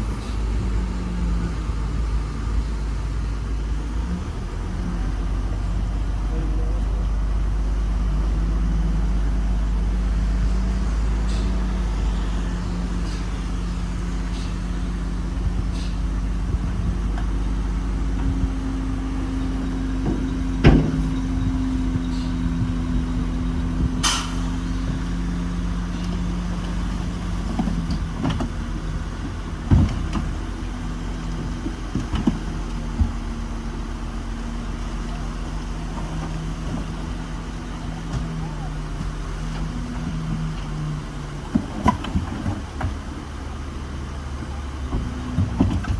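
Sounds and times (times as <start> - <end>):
heavy machinery diesel engines: 0.0 - 45.9
sharp knocks and clanks: 19.4 - 25.1.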